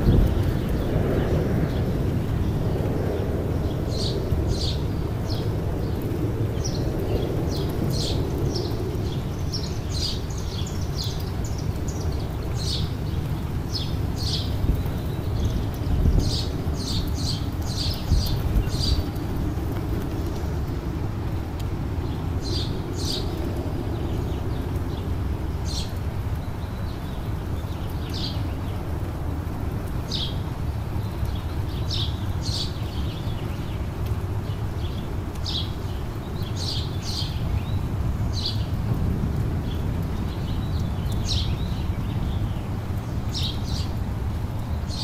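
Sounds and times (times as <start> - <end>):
birds chirping: 0.0 - 21.4, 39.6 - 45.0.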